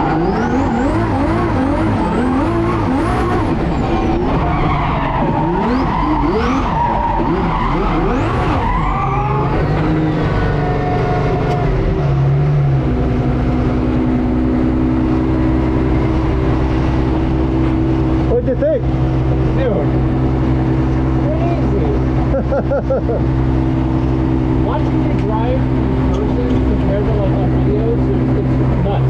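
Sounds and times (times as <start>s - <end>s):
tyre squeal: 0.0s - 11.8s
car engine revving: 0.0s - 29.0s.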